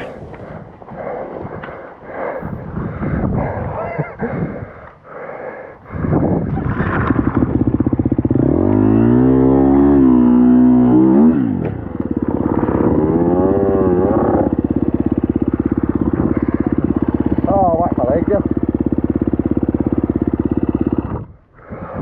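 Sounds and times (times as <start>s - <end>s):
dirt bike engine revving: 6.3s - 21.4s.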